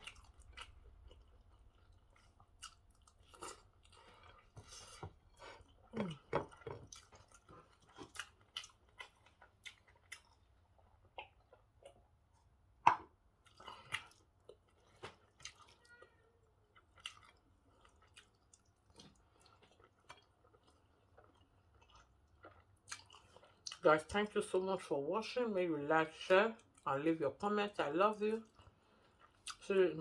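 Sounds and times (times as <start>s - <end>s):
person chewing food: 0.0s - 23.8s, 28.4s - 29.6s.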